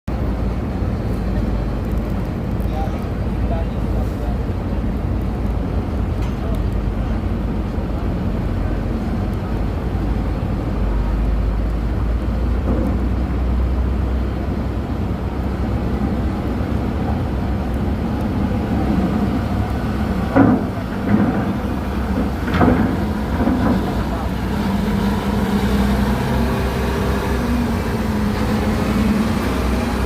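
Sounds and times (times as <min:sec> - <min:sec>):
diesel engine rumbling: 0:00.1 - 0:30.0.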